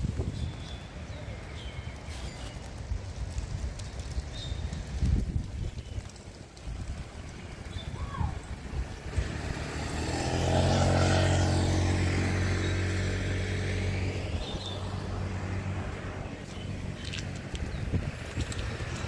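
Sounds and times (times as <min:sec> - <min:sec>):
motor vehicle passing by: 0:06.9 - 0:19.0.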